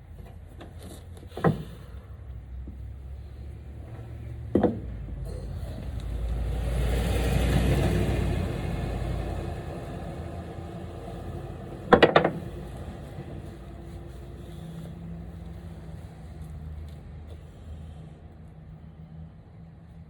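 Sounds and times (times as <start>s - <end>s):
sharp knocks: 4.5s - 5.0s, 11.9s - 12.7s.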